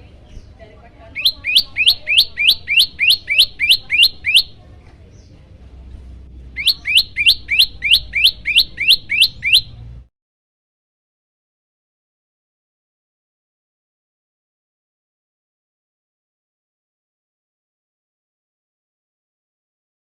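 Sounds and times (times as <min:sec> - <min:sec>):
bird chirping: 0:00.2 - 0:05.4, 0:06.4 - 0:09.8.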